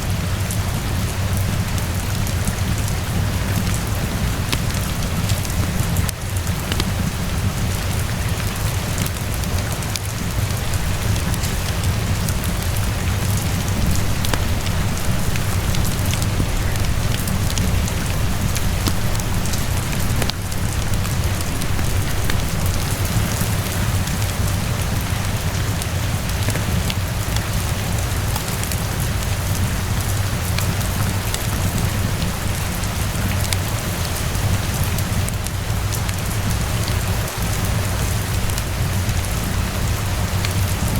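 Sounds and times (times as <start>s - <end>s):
rain falling: 0.0s - 40.9s
wood fire crackling: 0.0s - 40.9s
deep low rumble: 10.2s - 25.6s.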